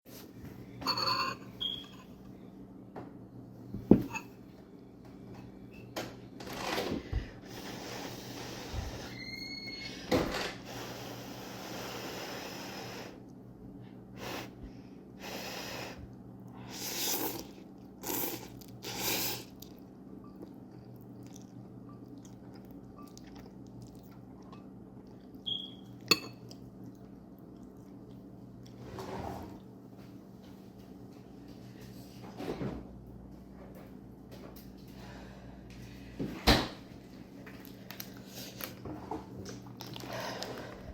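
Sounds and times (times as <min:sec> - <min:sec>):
wet eating sounds: 0:16.8 - 0:28.8, 0:37.4 - 0:40.9.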